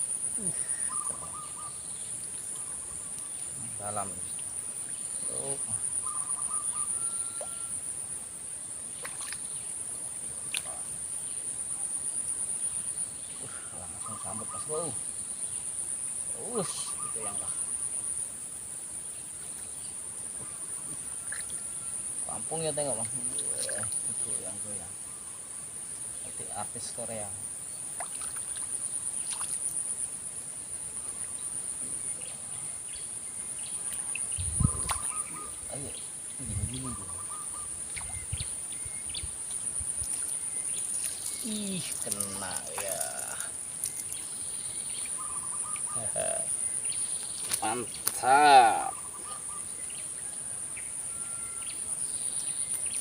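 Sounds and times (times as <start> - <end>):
faint bird chirps: 0.0 - 7.9, 10.4 - 18.3, 30.9 - 53.0
insect buzzing: 0.0 - 53.0
high-pitched insect drone: 34.1 - 49.1.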